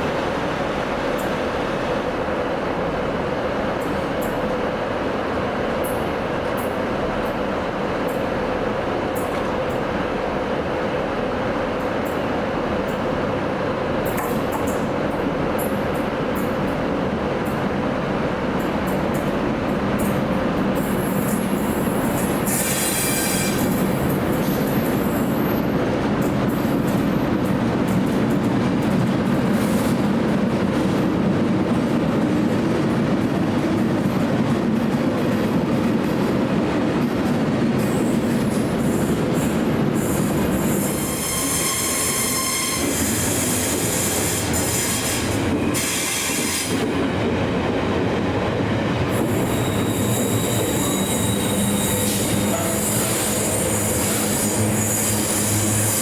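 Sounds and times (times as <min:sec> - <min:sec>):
train rumbling on track: 0:00.0 - 0:56.0
steel wheels squealing: 0:40.0 - 0:46.8, 0:49.2 - 0:56.0.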